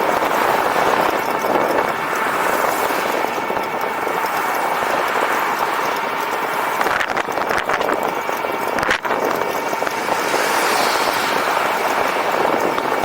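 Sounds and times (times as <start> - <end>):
road and wind noise: 0.0 - 13.0.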